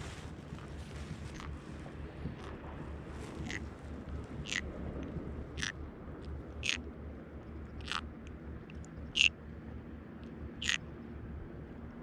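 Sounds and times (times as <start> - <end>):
pufferfish squeaking: 3.4 - 3.6.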